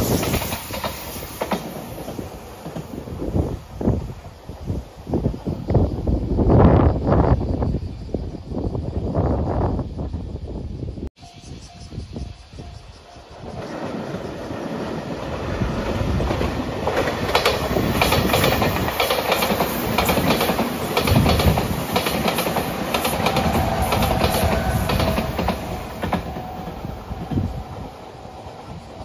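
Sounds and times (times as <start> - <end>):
train wheels clicking over rail joints: 0.0 - 3.3, 13.4 - 27.6.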